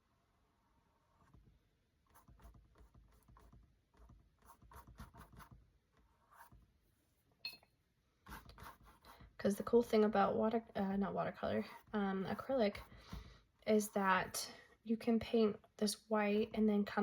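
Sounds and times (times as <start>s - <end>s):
paintbrush scratching on canvas: 0.9s - 6.7s, 8.2s - 9.4s.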